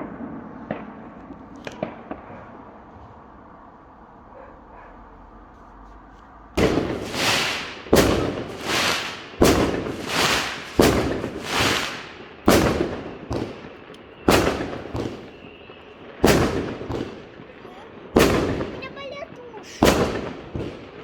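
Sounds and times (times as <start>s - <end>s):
fireworks bangs: 0.0s - 3.7s, 6.6s - 21.0s
rolling rumble: 6.2s - 15.4s.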